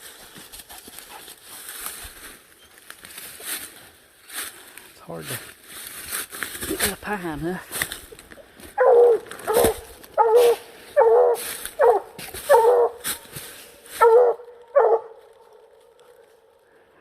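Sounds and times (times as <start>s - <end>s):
dog barking loudly: 8.8s - 13.0s, 14.0s - 15.2s.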